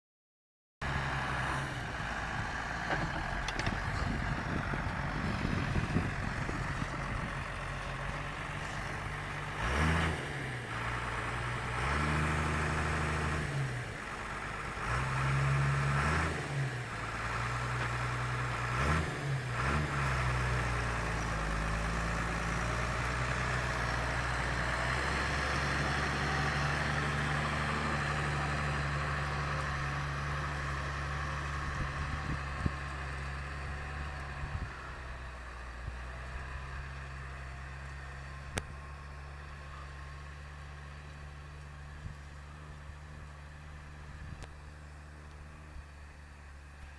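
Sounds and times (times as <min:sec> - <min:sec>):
tractor diesel engine: 0:00.8 - 0:46.9.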